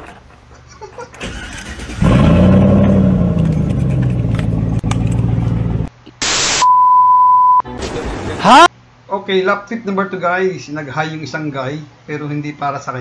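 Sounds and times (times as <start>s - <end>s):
starter rattle: 1.0s - 5.8s
car engine revving and idling: 1.8s - 5.9s.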